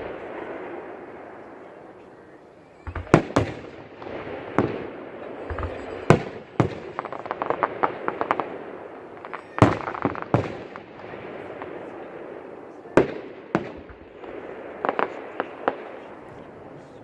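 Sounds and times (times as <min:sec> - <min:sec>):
fireworks shells bursting: 0:02.6 - 0:11.8
crackling pops: 0:05.5 - 0:12.0, 0:13.0 - 0:16.2.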